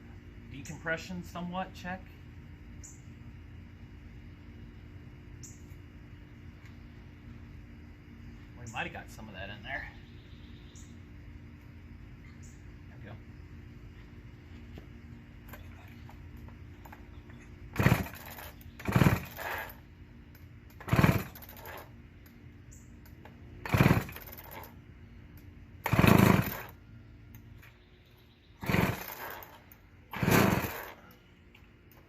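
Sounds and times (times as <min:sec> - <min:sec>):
chainsaw recoil starter yanks: 0:17.7 - 0:19.8, 0:20.7 - 0:21.9, 0:23.6 - 0:24.7, 0:25.8 - 0:26.8, 0:28.6 - 0:31.1
engine turning over rasping: 0:17.7 - 0:19.8, 0:20.7 - 0:21.9, 0:23.6 - 0:24.8, 0:25.8 - 0:26.8, 0:28.6 - 0:31.1.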